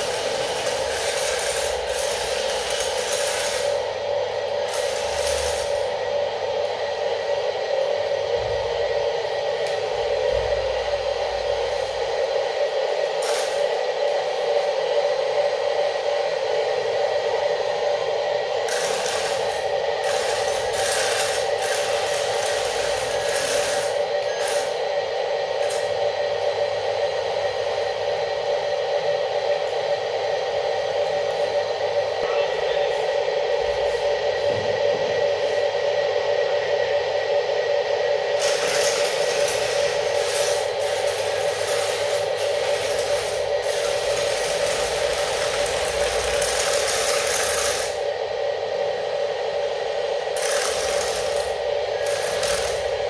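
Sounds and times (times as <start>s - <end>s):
toy motor buzzing hum: 0.0s - 3.9s, 4.6s - 5.9s, 13.2s - 13.8s, 18.6s - 24.9s, 38.4s - 48.1s, 50.3s - 53.0s
harsh grinding: 50.4s - 52.9s.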